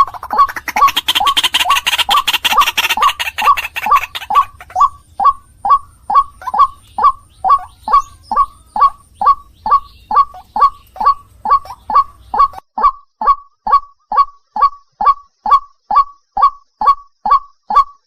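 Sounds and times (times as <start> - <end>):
waterhen calling: 0.0 - 12.9.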